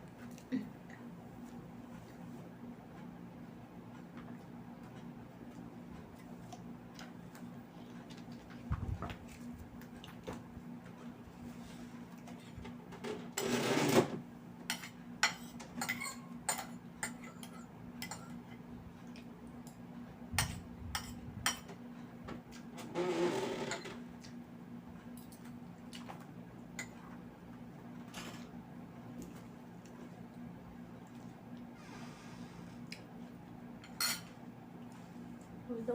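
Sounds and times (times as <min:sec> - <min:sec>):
steady low hum: 0:14.2 - 0:23.1, 0:23.7 - 0:35.9.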